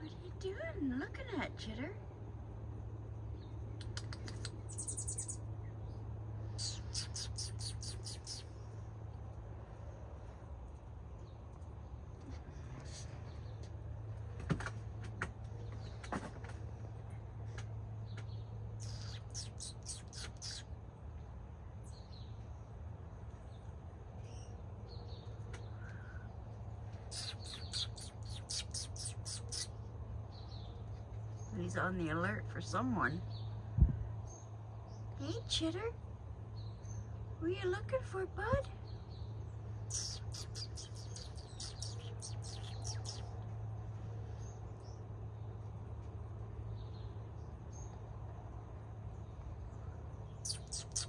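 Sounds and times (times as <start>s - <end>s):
steady low hum: 0.0s - 51.0s
small bird chirping: 3.0s - 10.4s, 15.1s - 32.1s, 38.7s - 51.0s.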